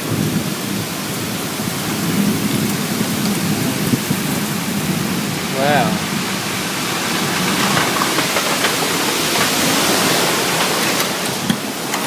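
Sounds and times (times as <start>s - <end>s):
heavy rain: 0.0s - 12.0s
strong wind: 0.0s - 12.0s.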